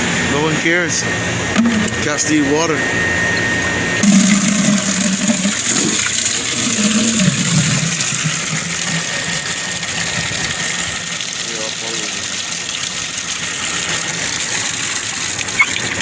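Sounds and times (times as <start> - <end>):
low hum: 1.2 - 10.6
water pouring into container: 1.6 - 2.1, 4.0 - 16.0.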